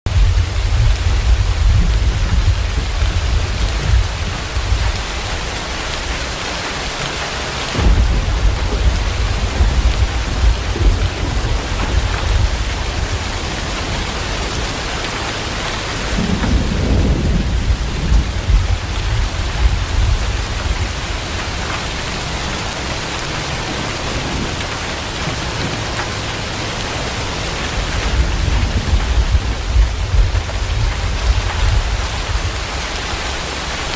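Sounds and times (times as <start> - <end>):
heavy rain pouring: 0.0 - 33.9
low rumble: 0.1 - 6.4, 7.7 - 24.8, 25.6 - 33.9.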